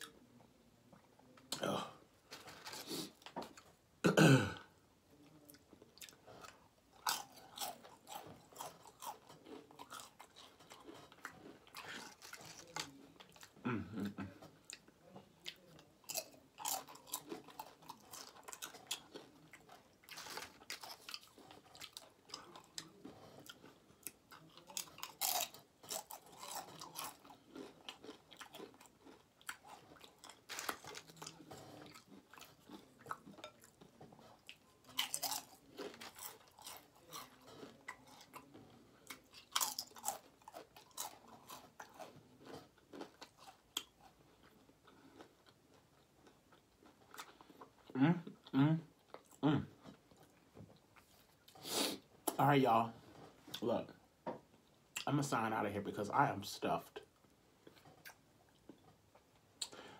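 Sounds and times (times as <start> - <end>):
chewing: 5.2 - 52.4, 57.0 - 59.9
crunching chips: 6.9 - 13.5, 15.5 - 33.8, 34.4 - 47.7.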